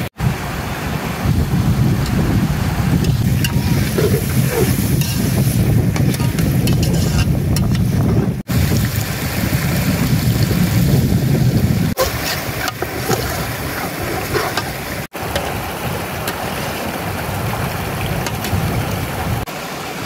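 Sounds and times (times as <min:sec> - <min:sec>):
wind buffeting microphone: 0:00.0 - 0:19.5
heavy rain rushing: 0:08.4 - 0:20.0.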